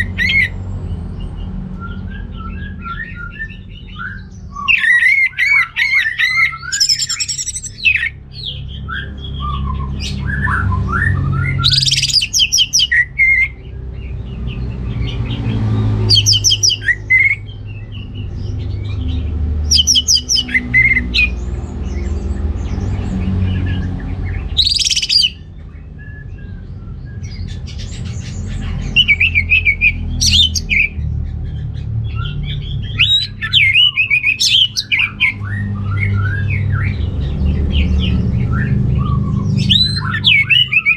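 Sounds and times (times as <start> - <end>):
thrush singing: 2.9 - 8.2, 10.0 - 13.6, 15.3 - 17.4, 19.6 - 21.4, 24.3 - 25.4, 28.0 - 31.0, 32.1 - 40.9.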